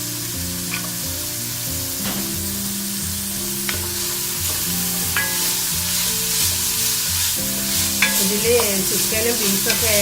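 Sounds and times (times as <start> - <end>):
vegetables sizzling in hot oil: 0.0 - 10.0.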